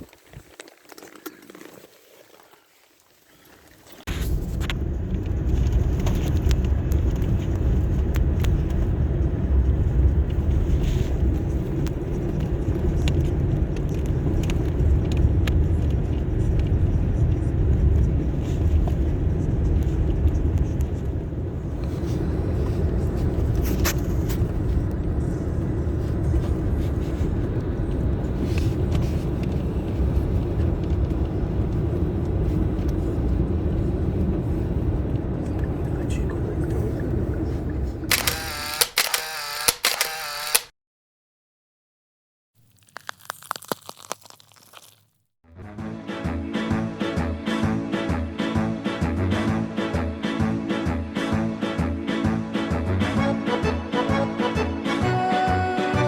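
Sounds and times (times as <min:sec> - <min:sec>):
vehicle engine rumbling: 0:04.0 - 0:40.7.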